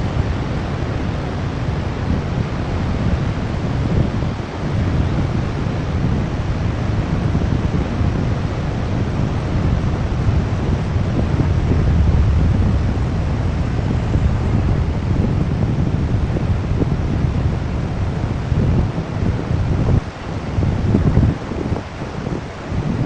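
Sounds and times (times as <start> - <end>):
wind buffeting microphone: 0.0 - 23.0
roar of falling water: 9.2 - 17.4.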